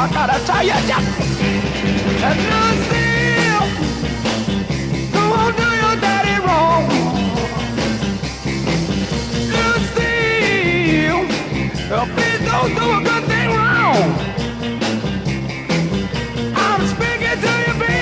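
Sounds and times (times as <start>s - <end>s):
rock and roll band playing: 0.0s - 18.0s.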